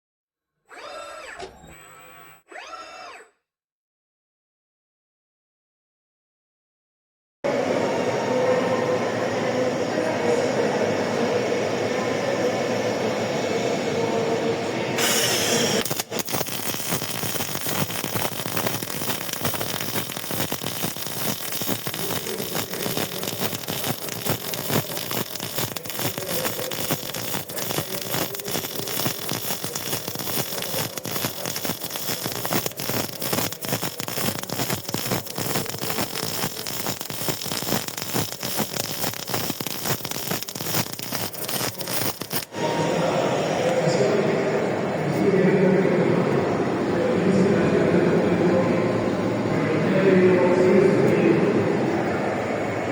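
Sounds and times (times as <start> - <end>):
welding arc crackling: 15.0 - 42.6.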